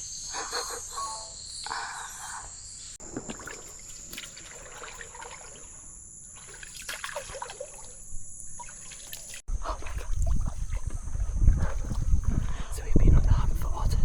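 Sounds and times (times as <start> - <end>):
insects droning: 0.0 - 14.0
water trickling and dripping: 3.1 - 12.1.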